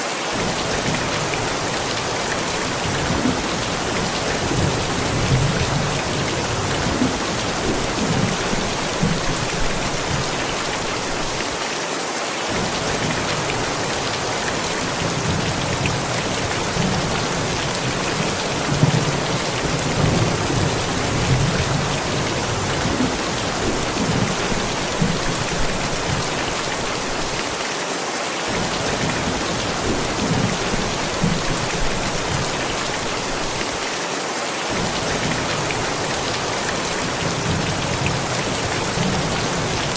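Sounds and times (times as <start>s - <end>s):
rain falling: 0.0s - 39.9s
thunder rumbling: 2.6s - 10.4s, 12.5s - 26.6s.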